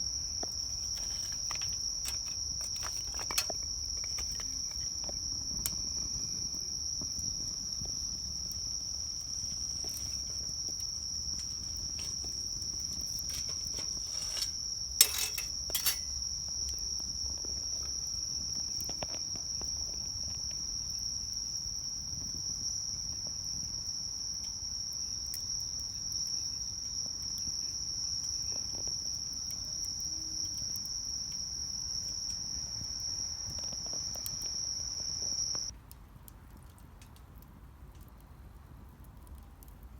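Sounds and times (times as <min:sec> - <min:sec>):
wood fire rumbling: 0:00.0 - 0:16.2
insect trilling: 0:00.0 - 0:20.1, 0:32.8 - 0:35.7
fire crackling and popping: 0:00.0 - 0:23.9, 0:32.2 - 0:39.9.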